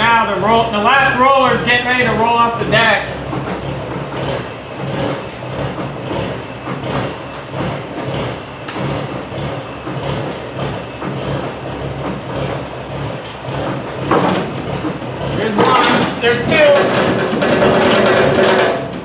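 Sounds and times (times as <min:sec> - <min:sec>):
truck engine running: 0:00.0 - 0:19.0
heavy knocks and clunks: 0:13.3 - 0:19.0.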